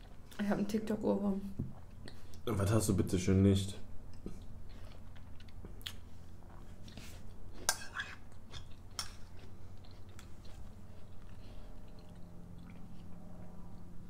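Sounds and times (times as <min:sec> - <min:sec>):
person chewing: 0:04.1 - 0:14.0.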